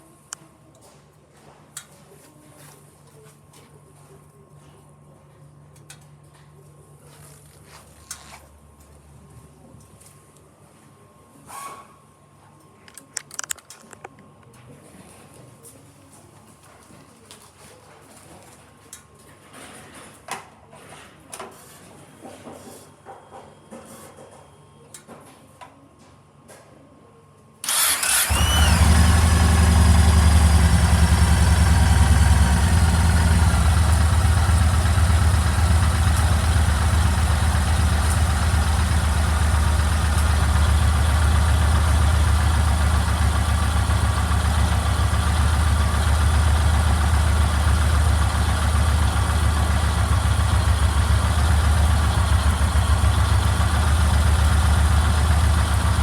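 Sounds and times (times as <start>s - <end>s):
motorcycle engine starting and idling: 27.6s - 56.0s.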